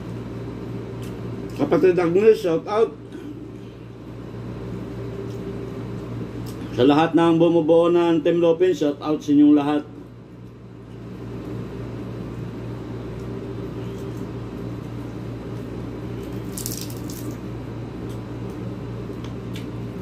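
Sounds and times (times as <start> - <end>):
man chewing food: 18.0 - 19.8.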